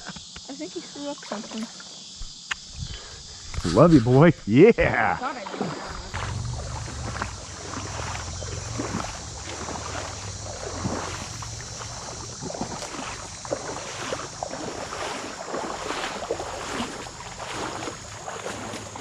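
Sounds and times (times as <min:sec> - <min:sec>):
creek water splashing and gurgling: 0:00.6 - 0:02.2, 0:04.8 - 0:19.0
wind rumble on microphone: 0:02.5 - 0:04.2, 0:05.9 - 0:15.0.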